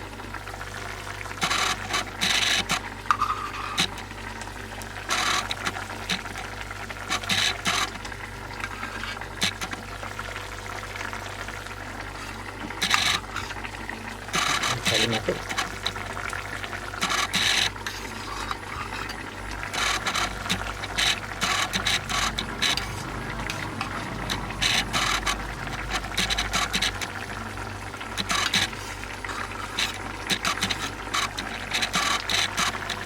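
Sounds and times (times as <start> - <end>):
metal utensil scraping a pot: 1.4 - 4.0, 14.3 - 33.0.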